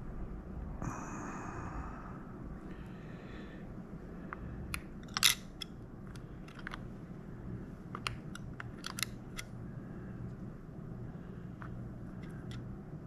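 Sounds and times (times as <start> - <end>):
small plastic parts clicking: 4.3 - 6.9, 7.9 - 9.6.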